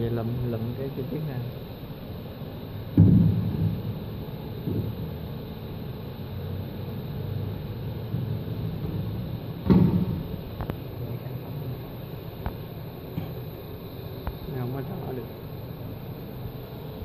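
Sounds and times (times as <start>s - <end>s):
low rumbling machine-shop noise: 0.0s - 17.0s
loud thump: 3.0s - 3.9s, 8.8s - 10.3s.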